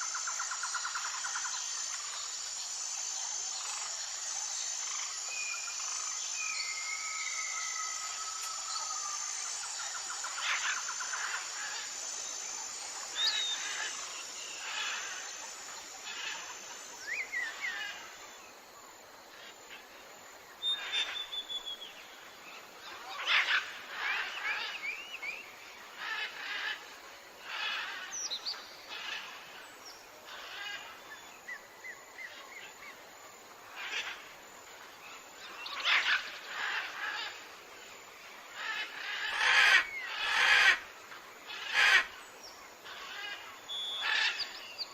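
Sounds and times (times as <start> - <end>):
pulsing insect trill: 0.0 - 19.9
birds calling and chirping: 35.1 - 37.6, 38.5 - 40.9, 41.5 - 44.9.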